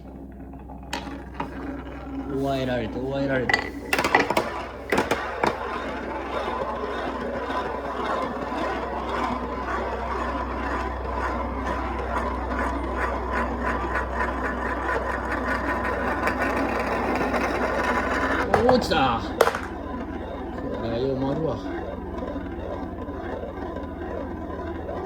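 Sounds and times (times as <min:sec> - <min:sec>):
marbles rolling on wooden track: 0:00.0 - 0:10.2, 0:15.4 - 0:21.9.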